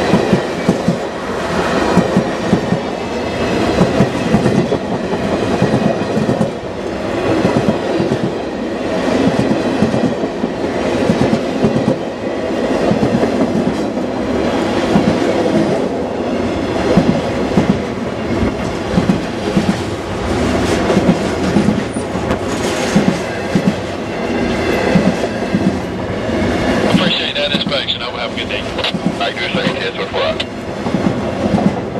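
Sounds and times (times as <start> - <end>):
train wheels clattering: 16.8 - 25.9.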